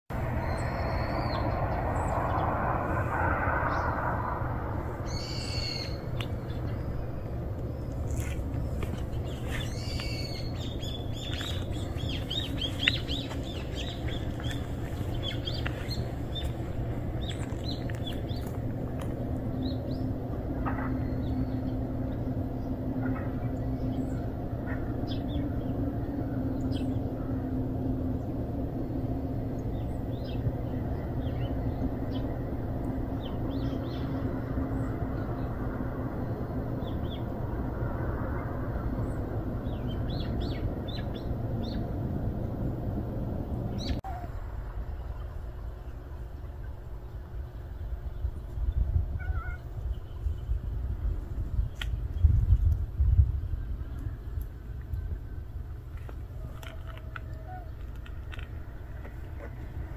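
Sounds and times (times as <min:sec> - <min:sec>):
low outdoor hum: 0:00.1 - 0:59.9
small birds chirping: 0:00.2 - 0:35.6, 0:38.8 - 0:42.0.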